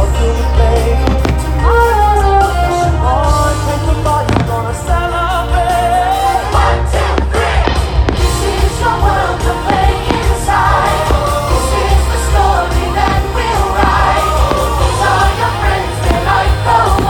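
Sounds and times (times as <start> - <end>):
pop music with singing and choir: 0.0 - 17.0
fireworks bursting bangs: 0.9 - 2.2, 3.6 - 5.2, 7.1 - 17.0.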